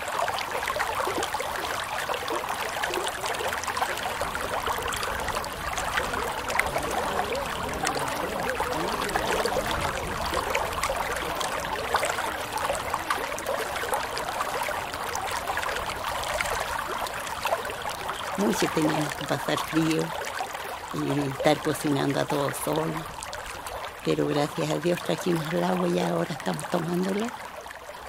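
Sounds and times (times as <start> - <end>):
stream trickling and bubbling: 0.0 - 28.0.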